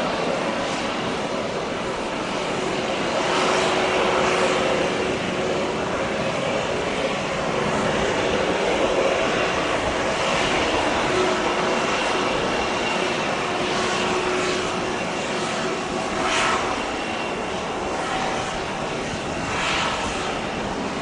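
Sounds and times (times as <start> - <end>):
jet engines running: 0.0 - 21.0.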